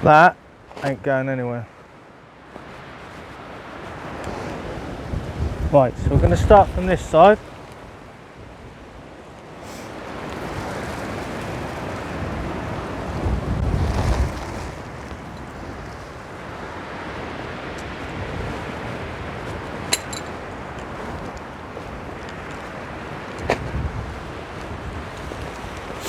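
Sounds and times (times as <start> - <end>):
wind on microphone: 3.8 - 26.0
tent fabric rustling: 13.7 - 16.3.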